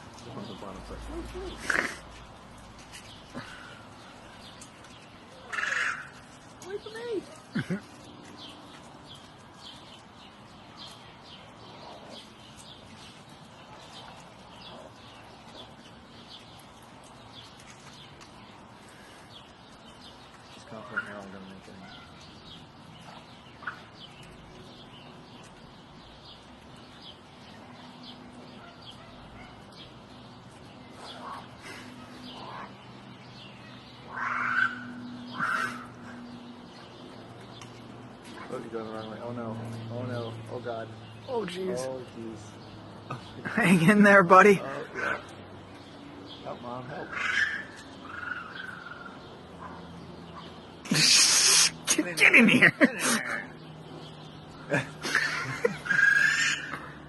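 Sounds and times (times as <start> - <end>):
bird chirping: 0.0 - 57.0.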